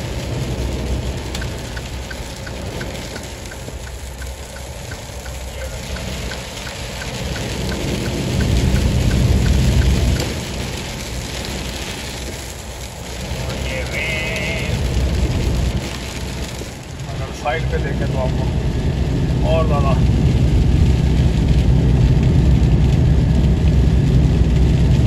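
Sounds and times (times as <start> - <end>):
heavy rain on windshield: 0.0 - 25.0
low rumble: 0.0 - 25.0
wet road noise: 0.0 - 25.0
faint ticking: 1.3 - 10.8.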